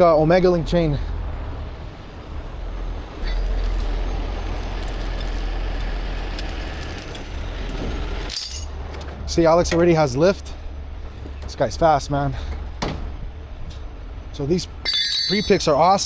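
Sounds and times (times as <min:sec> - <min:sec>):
diesel engine rumbling: 0:00.0 - 0:16.0
chain clinking: 0:03.2 - 0:08.8, 0:14.8 - 0:16.0.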